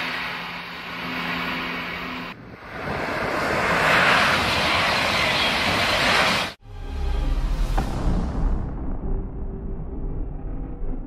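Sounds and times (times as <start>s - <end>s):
high-speed train rushing past: 0.0s - 8.0s.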